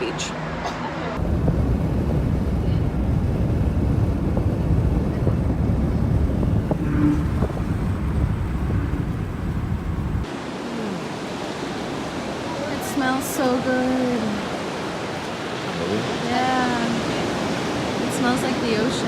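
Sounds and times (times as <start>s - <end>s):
low rumbling noise: 1.2s - 10.3s.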